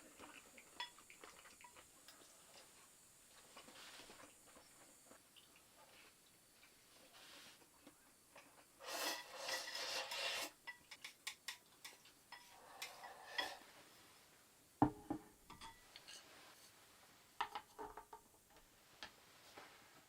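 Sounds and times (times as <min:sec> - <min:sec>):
utensil scraping a dish: 0:08.8 - 0:11.0, 0:11.8 - 0:13.7.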